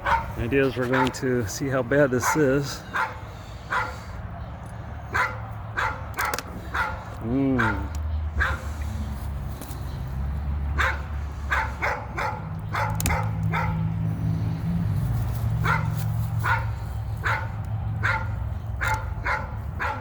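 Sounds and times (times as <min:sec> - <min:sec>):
dog barking: 0:00.0 - 0:01.2, 0:02.2 - 0:04.0, 0:05.1 - 0:08.7, 0:10.8 - 0:13.9, 0:15.6 - 0:20.0.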